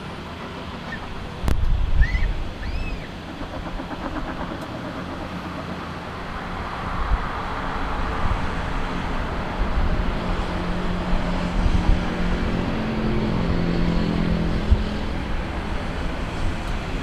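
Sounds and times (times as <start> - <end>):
jet airliner engine rumble: 0.0 - 17.0.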